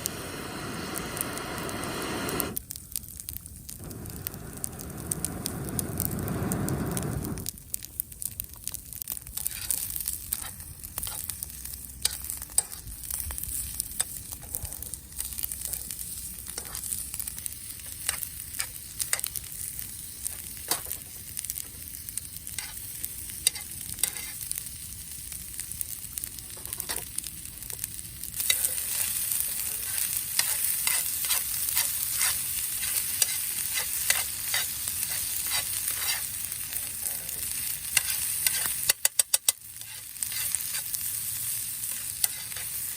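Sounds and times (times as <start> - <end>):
food sizzling in a pan: 0.0 - 42.9
pops and clicks: 37.9 - 39.6.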